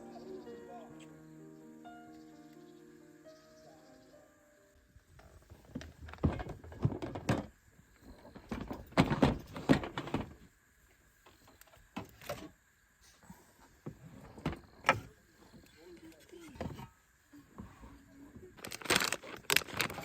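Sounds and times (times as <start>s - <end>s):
objects being handled: 17.6s - 20.0s.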